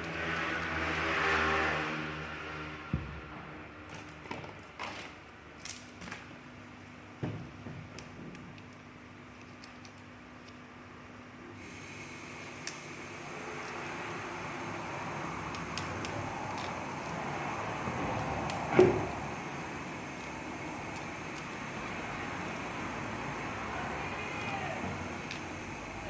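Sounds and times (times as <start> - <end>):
tools and metal parts clicking: 0.0 - 1.5, 3.9 - 6.3, 8.0 - 10.7, 13.5 - 13.9, 15.3 - 18.8, 20.0 - 22.2, 24.4 - 25.9.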